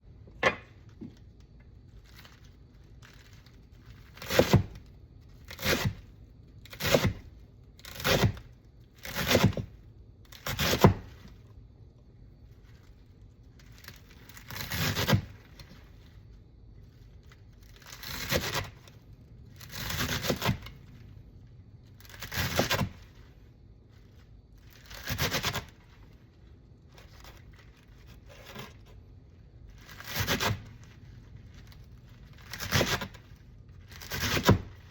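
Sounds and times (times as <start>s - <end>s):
tearing scraping strokes: 24.0s - 26.1s, 29.7s - 34.9s.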